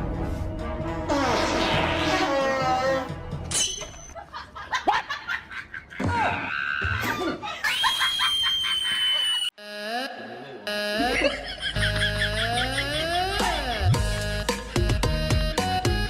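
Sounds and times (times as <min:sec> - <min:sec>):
background music: 0:00.0 - 0:04.1, 0:09.6 - 0:16.0.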